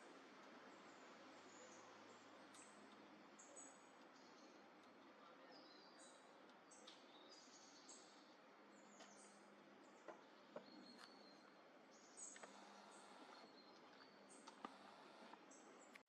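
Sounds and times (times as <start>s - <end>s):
faint high-pitched bird chirps: 5.2s - 16.0s.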